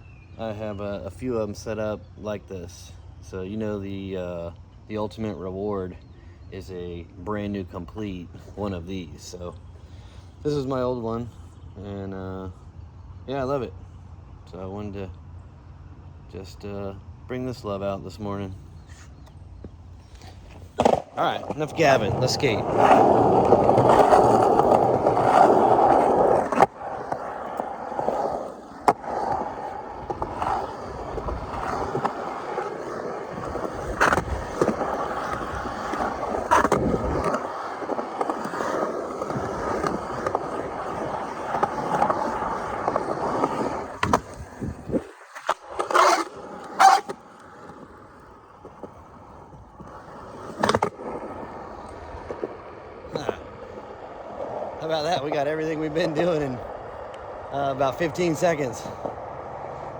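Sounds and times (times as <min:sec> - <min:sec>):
skateboard wheels rolling on pavement: 0:00.0 - 0:59.9
skateboard clacks: 0:20.5 - 0:59.9.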